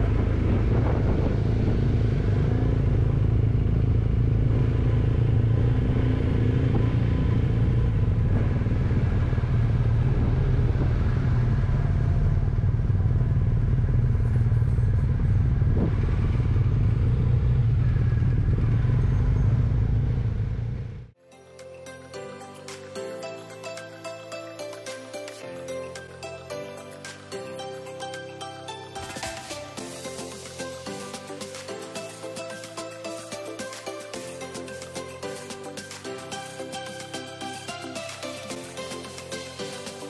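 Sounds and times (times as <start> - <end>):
motorcycle engine running: 0.0 - 21.1.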